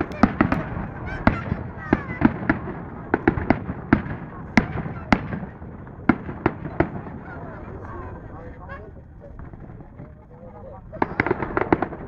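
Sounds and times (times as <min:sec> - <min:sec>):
firework shells bursting with bangs: 0:00.0 - 0:07.3
rumble of firework bursts: 0:00.0 - 0:12.0.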